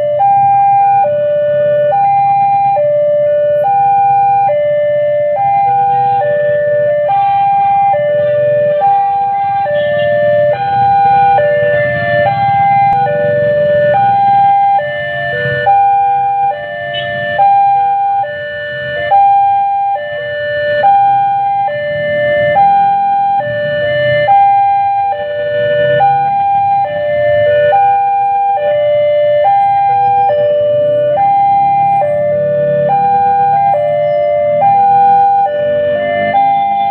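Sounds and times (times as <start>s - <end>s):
level-crossing alarm chime: 29.4s - 36.9s.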